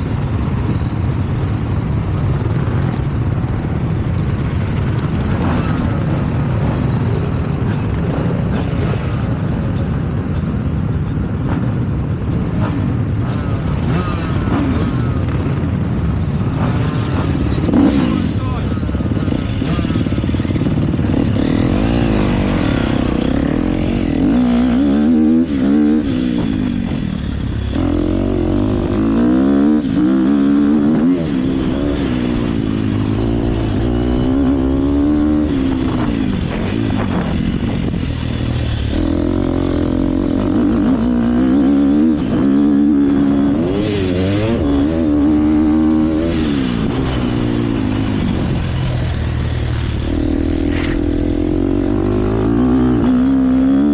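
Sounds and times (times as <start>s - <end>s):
motocross bike engine revving: 11.3s - 53.9s.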